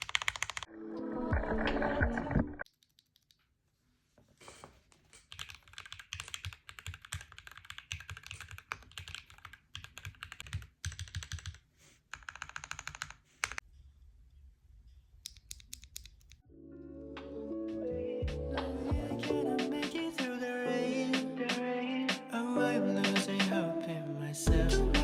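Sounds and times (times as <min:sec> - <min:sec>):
mechanical keyboard typing: 0:00.0 - 0:00.7, 0:05.2 - 0:13.6.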